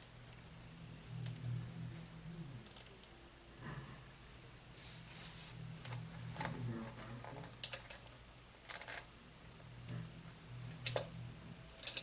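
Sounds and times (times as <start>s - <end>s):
steady low hum: 0.0s - 12.0s
small parts clicking and tapping: 2.6s - 3.1s, 5.8s - 9.1s, 10.7s - 11.1s, 11.8s - 12.0s.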